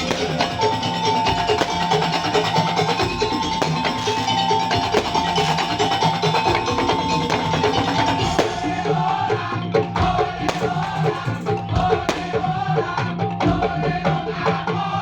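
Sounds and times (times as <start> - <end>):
held high melodic line: 0.0 - 9.0
percussion ensemble playing: 0.0 - 15.0.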